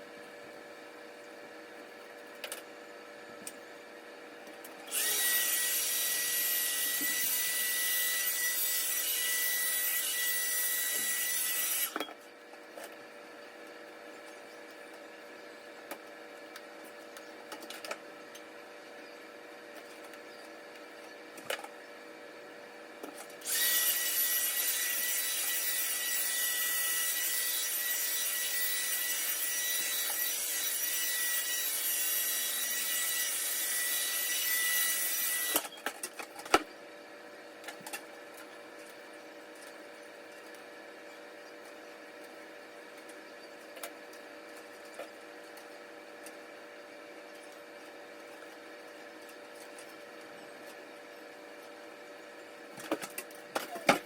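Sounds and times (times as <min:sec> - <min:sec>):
small machine whining: 0:00.0 - 0:36.3.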